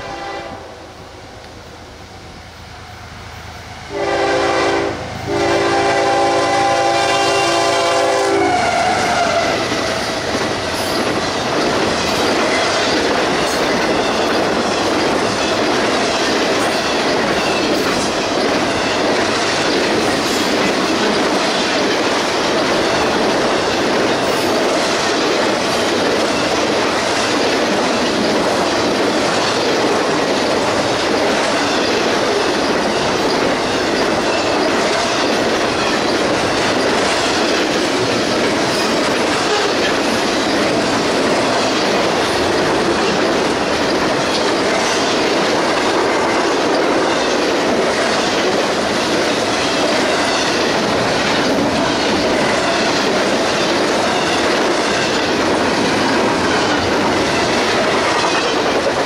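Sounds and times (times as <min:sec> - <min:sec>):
locomotive horn blasts: 0:00.0 - 0:00.9, 0:03.9 - 0:09.6
train wheels on rails: 0:00.0 - 0:59.0.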